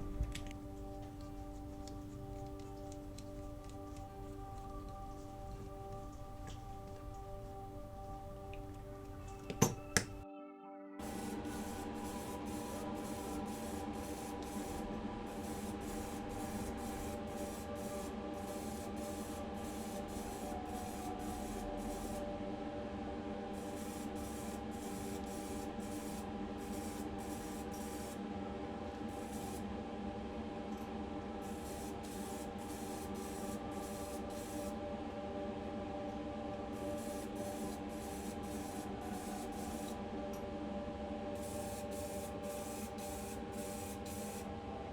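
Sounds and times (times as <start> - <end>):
steady hum: 0.0 - 10.2, 11.0 - 44.9
spray paint hissing: 11.0 - 22.2, 23.6 - 28.2, 29.1 - 29.6, 31.4 - 34.8, 36.8 - 40.0, 41.4 - 44.5.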